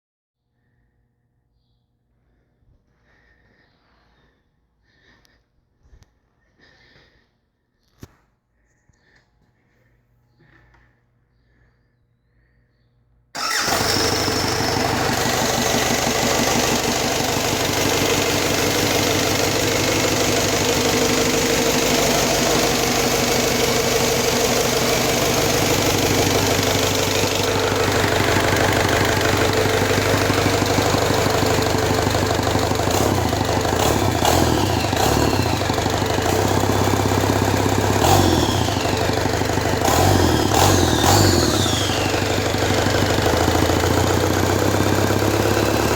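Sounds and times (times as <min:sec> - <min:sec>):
diesel engine running and revving: 0:13.4 - 0:45.9.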